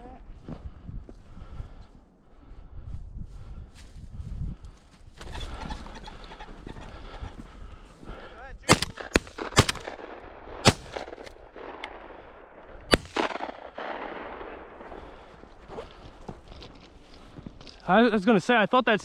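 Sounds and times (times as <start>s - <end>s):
shotgun shots with echo: 8.7s - 15.5s.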